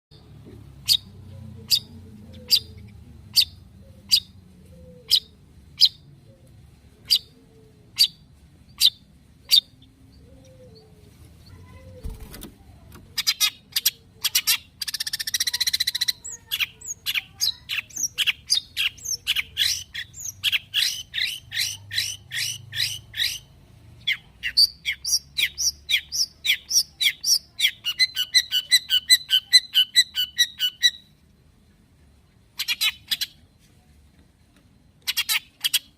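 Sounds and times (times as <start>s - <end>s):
bird chattering song: 0.1s - 6.2s, 7.0s - 11.8s, 12.8s - 31.1s, 32.5s - 33.5s, 35.0s - 35.9s
bird sharp calls: 13.2s - 31.0s.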